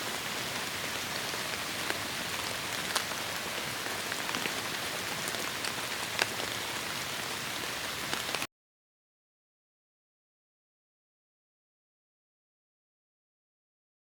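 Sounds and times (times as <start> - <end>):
heavy rain in forest: 0.0 - 8.5.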